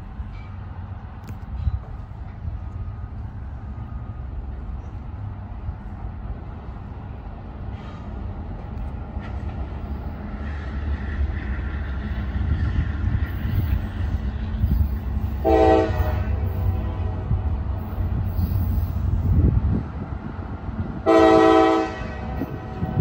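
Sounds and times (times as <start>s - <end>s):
freight train rumble: 0.0s - 23.0s
locomotive air horn: 15.3s - 17.5s, 21.0s - 23.0s.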